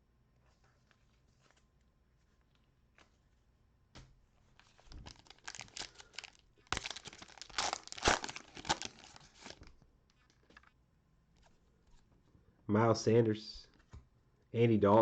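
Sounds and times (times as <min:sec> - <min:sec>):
wrapper tearing and crinkling: 0:04.6 - 0:09.7.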